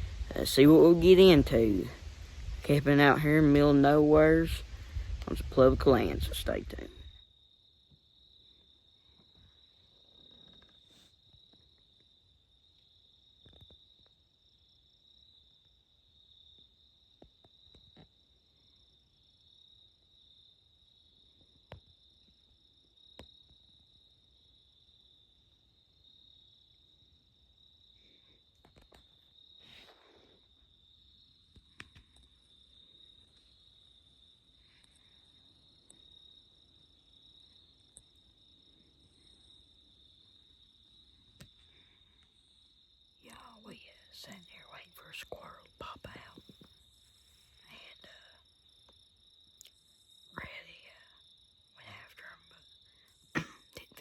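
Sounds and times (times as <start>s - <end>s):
insect chorus trilling: 0.0s - 54.0s
small clicks and snaps: 31.5s - 32.3s.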